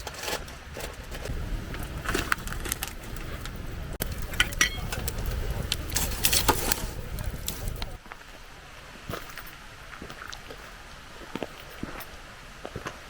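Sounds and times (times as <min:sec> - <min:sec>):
campfire crackling and popping: 0:00.7 - 0:08.2
low rumble: 0:01.0 - 0:08.0.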